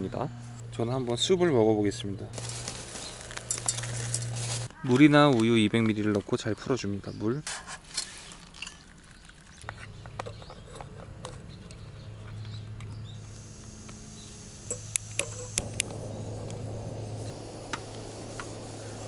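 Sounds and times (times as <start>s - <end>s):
camping stove burning: 2.4s - 4.8s, 12.4s - 19.0s.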